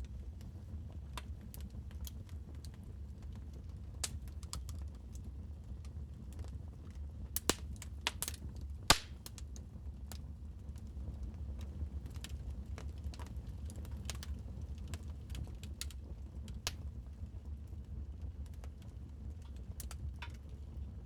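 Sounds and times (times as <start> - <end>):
low rumble of burning fire: 0.0 - 21.0
wood fire pops and snaps: 4.0 - 6.5, 7.3 - 10.2, 11.5 - 17.0.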